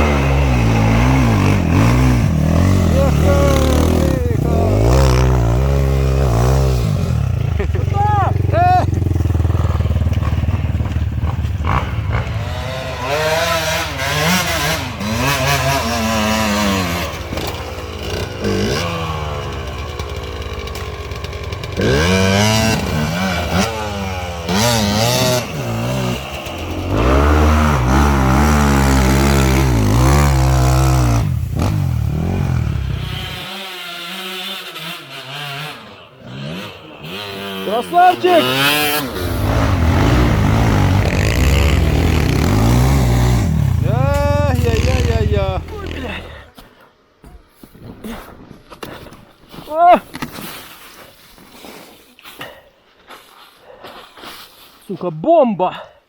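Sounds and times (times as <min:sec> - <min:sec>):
motorcycle engine revving: 0:00.0 - 0:46.5.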